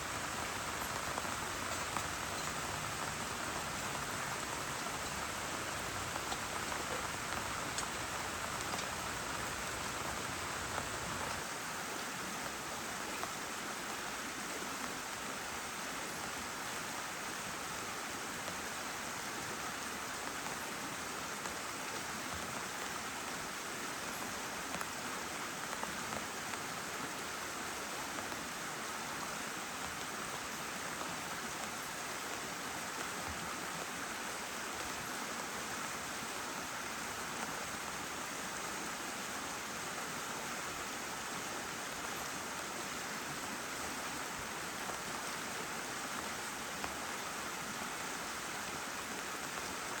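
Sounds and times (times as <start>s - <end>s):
heavy rain falling: 0.0s - 13.6s.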